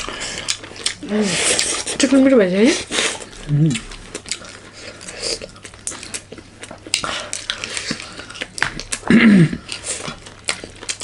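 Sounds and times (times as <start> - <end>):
chewing: 0.0 - 11.0.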